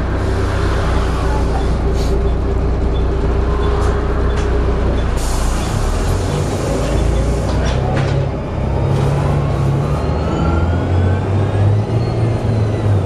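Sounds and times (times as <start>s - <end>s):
faint rising whine: 0.0s - 6.5s
bus engine running: 0.0s - 13.0s
air hiss: 5.2s - 7.5s.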